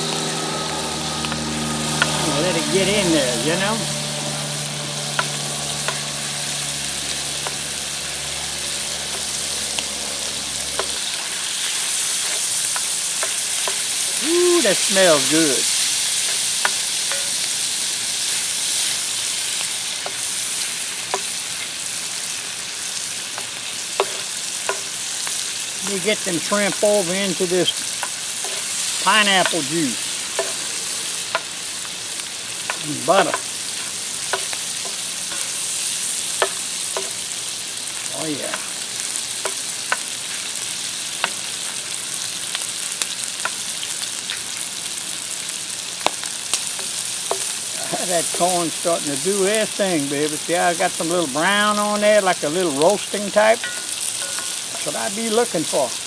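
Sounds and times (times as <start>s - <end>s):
food sizzling in a hot pan: 0.0s - 56.0s
sharp popping of frying food: 0.0s - 56.0s.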